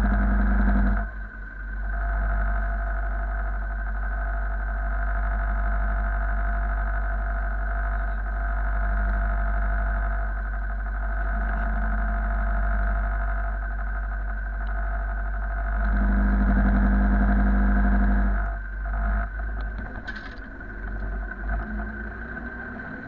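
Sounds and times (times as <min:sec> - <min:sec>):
machine engine running: 0:00.0 - 0:04.2, 0:10.9 - 0:23.0.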